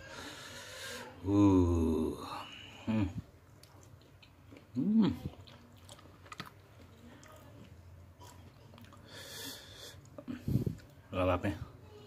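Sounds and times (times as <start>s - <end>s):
person humming: 1.2s - 3.2s
person chewing: 3.1s - 11.0s.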